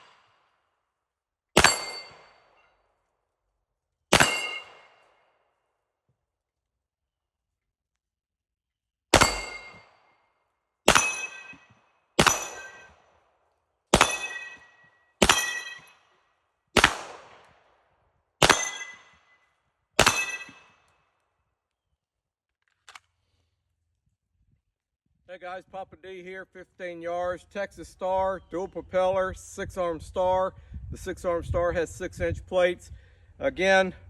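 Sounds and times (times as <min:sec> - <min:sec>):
pistol shots: 0:01.6 - 0:02.6, 0:04.1 - 0:05.2, 0:09.1 - 0:10.0, 0:10.9 - 0:11.6, 0:12.2 - 0:13.0, 0:13.9 - 0:15.9, 0:16.8 - 0:17.6, 0:18.4 - 0:19.2, 0:20.0 - 0:20.7
steel target plates ringing: 0:01.6 - 0:02.6, 0:04.2 - 0:05.1, 0:09.2 - 0:10.1, 0:10.9 - 0:13.0, 0:14.0 - 0:16.0, 0:18.4 - 0:19.4, 0:20.0 - 0:20.7.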